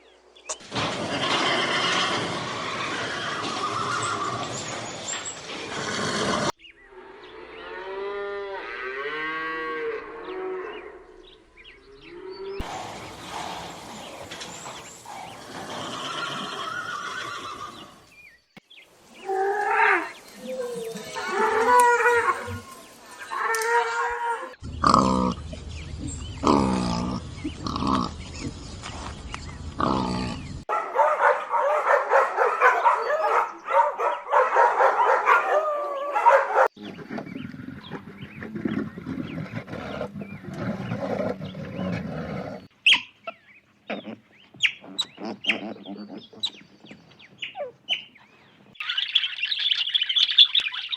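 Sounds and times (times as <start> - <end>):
deep drawn-out animal calls: 1.0 - 18.1, 19.2 - 28.7
animal calls: 12.0 - 18.1, 29.8 - 50.9.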